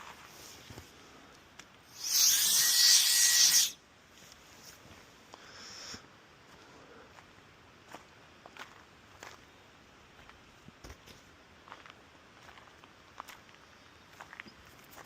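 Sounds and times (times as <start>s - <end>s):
electric air duster hissing: 1.9s - 3.8s.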